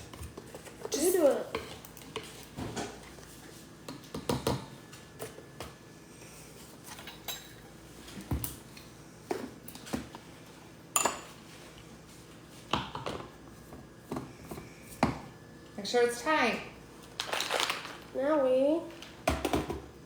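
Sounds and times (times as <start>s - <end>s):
spoon and dishes clinking: 6.9s - 7.6s, 11.0s - 11.4s.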